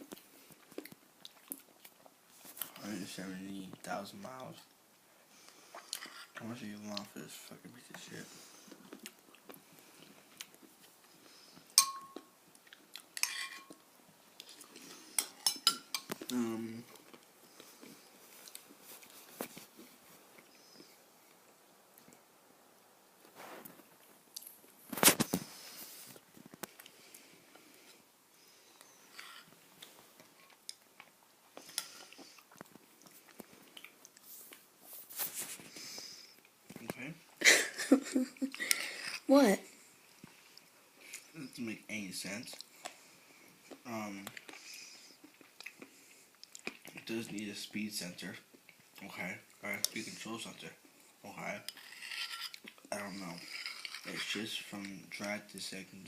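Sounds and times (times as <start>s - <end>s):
tableware clinking: 11.8s - 12.3s, 13.2s - 13.8s, 15.2s - 16.1s.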